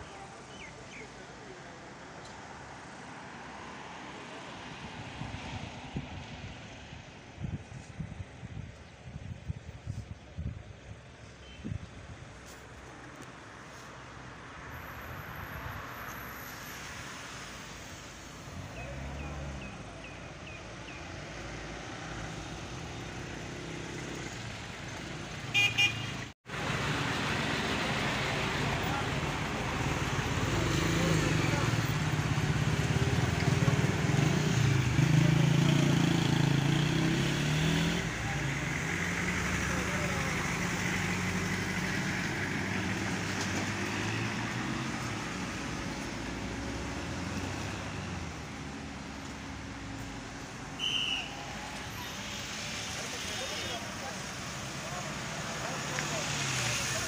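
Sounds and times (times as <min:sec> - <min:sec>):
road traffic rumble: 0:00.0 - 0:57.0
vehicle horn toots: 0:25.5 - 0:26.2, 0:50.8 - 0:51.4.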